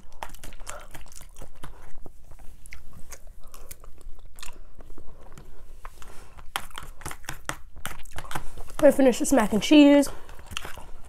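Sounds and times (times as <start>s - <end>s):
sticky chewing mouth clicks: 0.0s - 5.4s, 6.4s - 8.8s.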